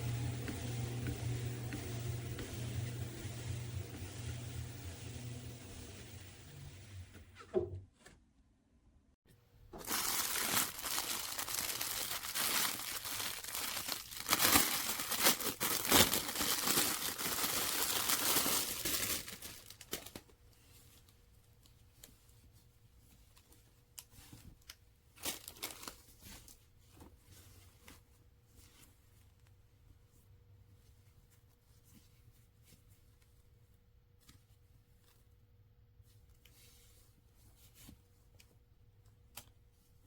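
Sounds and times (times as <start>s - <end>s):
loud crinkling and rustling: 9.8s - 20.3s, 25.2s - 28.0s.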